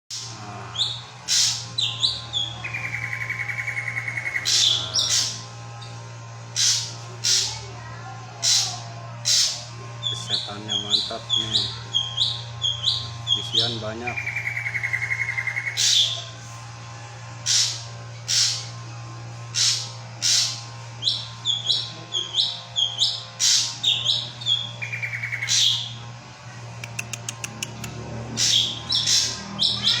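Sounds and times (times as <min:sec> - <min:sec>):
harsh rasping bird calls: 0:00.1 - 0:16.4, 0:17.3 - 0:30.0
low hum: 0:14.1 - 0:30.0
bird song whistles and trills: 0:19.6 - 0:26.0.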